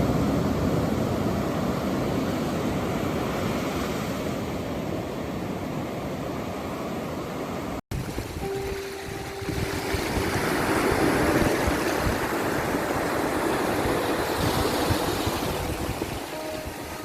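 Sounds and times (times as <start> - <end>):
ocean waves washing on shore: 0.0 - 17.0
soft melody held tones: 8.4 - 17.0.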